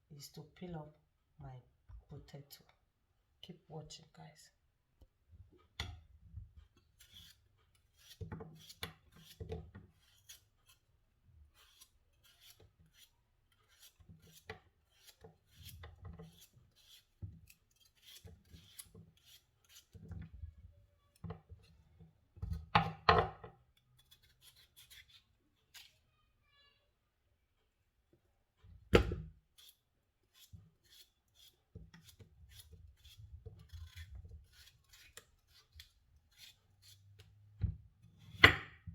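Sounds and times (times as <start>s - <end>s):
blade scraping potato skin: 6.8s - 20.2s, 23.7s - 26.0s, 29.4s - 37.4s.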